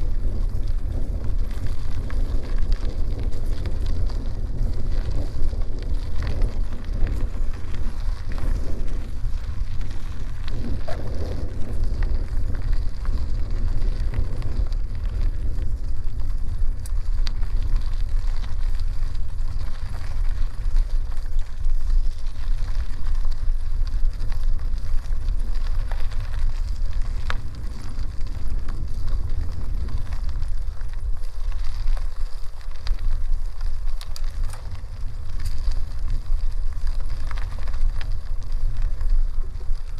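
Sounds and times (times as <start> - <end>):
tyres rolling on dirt: 0.0 - 39.9
wind rumble on microphone: 0.0 - 39.9
small clicks: 16.7 - 17.4, 29.3 - 39.8.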